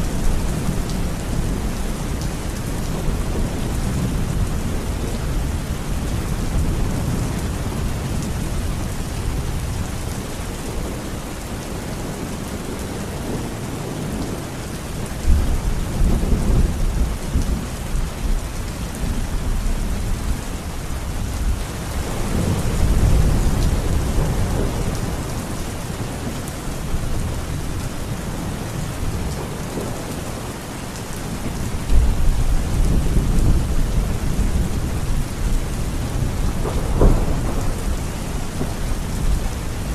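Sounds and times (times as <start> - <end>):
heavy rain: 0.0 - 39.9
thunder rumbling: 21.4 - 28.2, 31.3 - 39.9.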